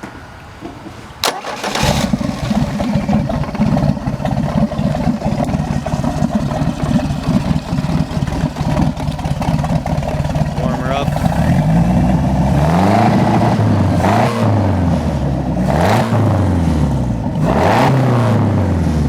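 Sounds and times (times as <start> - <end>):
starter motor clicking: 1.2 - 11.7
boat engine cranking and running: 1.2 - 13.5
man talking: 10.5 - 11.8.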